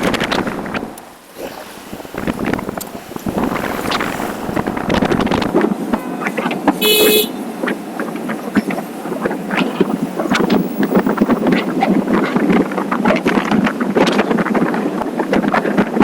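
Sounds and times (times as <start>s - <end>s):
wind buffeting microphone: 0.0s - 16.0s
vehicle horn beep: 6.0s - 7.5s.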